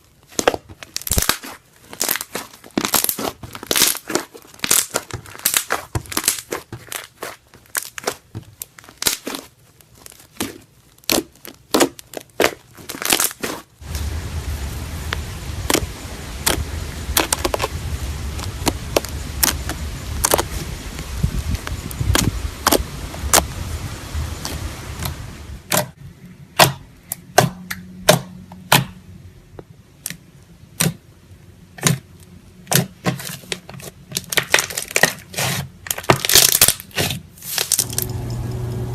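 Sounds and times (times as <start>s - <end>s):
slime popping and crackling: 0.2s - 23.6s, 32.7s - 38.2s
steady low rumble: 13.8s - 26.5s, 37.8s - 38.9s.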